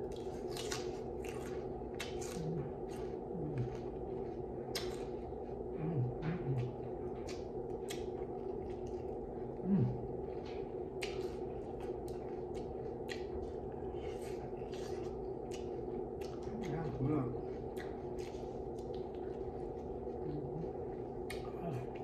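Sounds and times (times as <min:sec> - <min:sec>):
low steady hum: 0:00.0 - 0:22.0
person chewing with wet smacks: 0:00.0 - 0:22.0.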